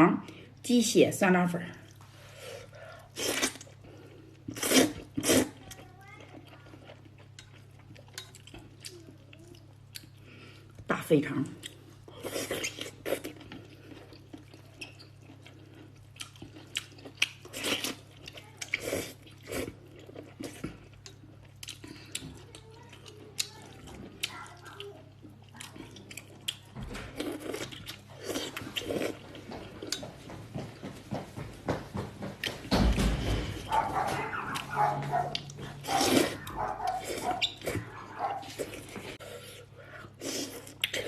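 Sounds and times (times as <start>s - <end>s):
faint low hum: 0.0s - 41.0s
wet chewing and slurping noodles: 1.8s - 10.8s, 11.6s - 30.1s, 33.6s - 41.0s.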